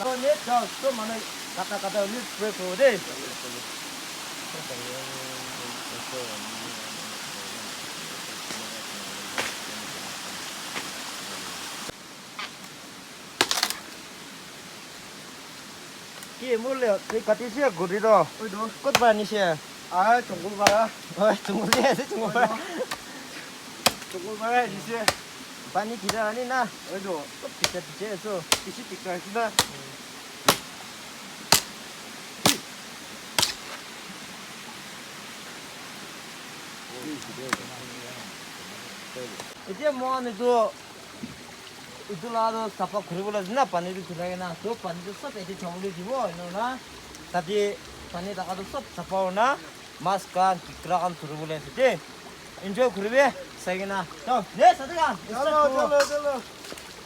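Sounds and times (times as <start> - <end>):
river rushing: 0.0 - 57.0
running water: 0.0 - 57.0
sharp chopping strikes: 13.4 - 13.8, 18.9 - 19.2, 20.6 - 20.9, 21.7 - 22.0, 23.8 - 24.2, 25.0 - 25.3, 26.0 - 26.4, 27.6 - 27.9, 28.5 - 28.8, 29.6 - 29.8, 30.5 - 30.7, 31.5 - 31.8, 32.4 - 32.8, 33.4 - 33.8.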